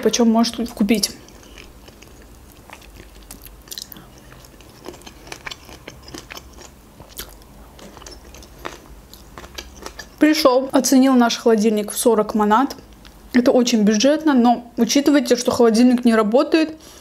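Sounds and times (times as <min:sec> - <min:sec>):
chewing and biting: 0:01.3 - 0:10.2
wet clicks and crunches: 0:01.9 - 0:10.2.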